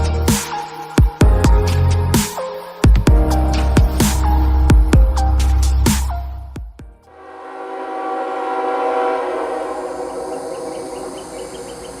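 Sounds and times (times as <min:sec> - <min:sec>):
insect chirping: 0:00.0 - 0:06.5, 0:09.5 - 0:12.0
locomotive horn blast: 0:07.1 - 0:11.7.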